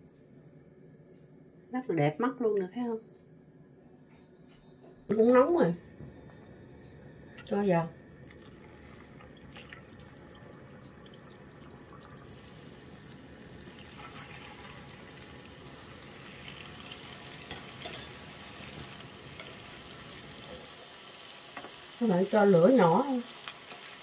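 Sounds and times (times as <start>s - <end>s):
batter frying in hot oil: 7.4s - 24.0s.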